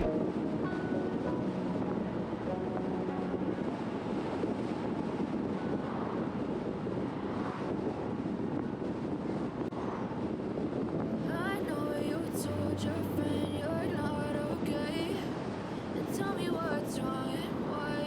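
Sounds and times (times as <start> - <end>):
wind buffeting microphone: 0.0 - 11.9.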